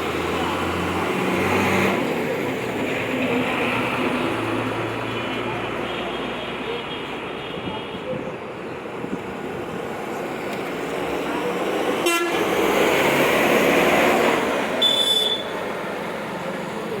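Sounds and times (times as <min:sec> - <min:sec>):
trucks passing on road: 0:00.0 - 0:17.0
sharp horn toot: 0:12.0 - 0:12.4, 0:14.8 - 0:15.5.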